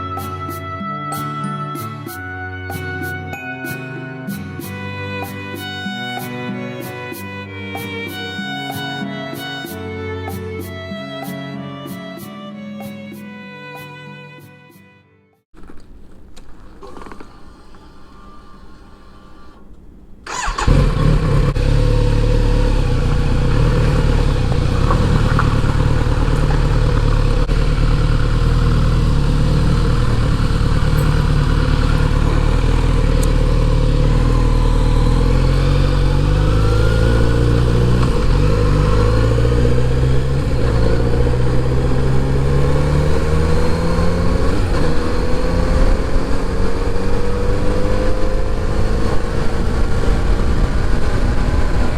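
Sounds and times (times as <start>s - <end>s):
motorcycle engine accelerating: 20.3s - 51.9s.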